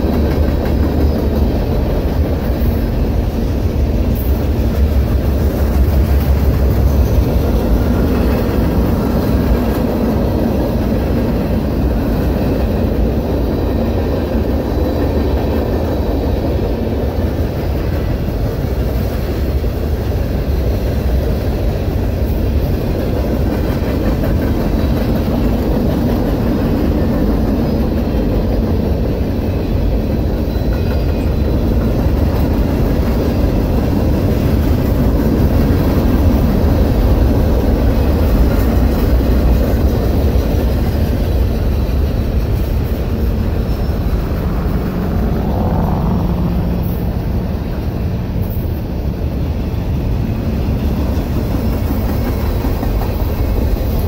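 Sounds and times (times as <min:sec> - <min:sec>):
freight train rolling past: 0:00.0 - 0:54.0
rising whine: 0:43.3 - 0:48.4.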